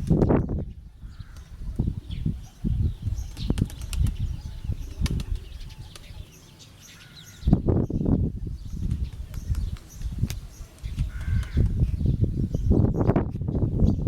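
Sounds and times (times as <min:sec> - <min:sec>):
pigeon wings flapping: 0:03.4 - 0:04.2.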